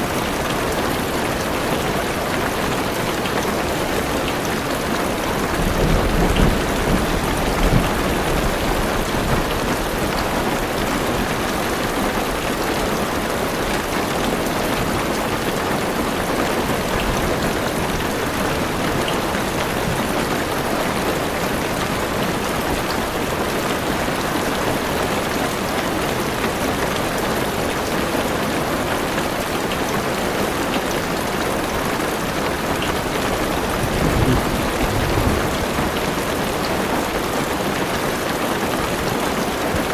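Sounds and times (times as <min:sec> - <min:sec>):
heavy rain on a car roof: 0:00.0 - 0:39.9
low thunder rumble: 0:33.6 - 0:36.2.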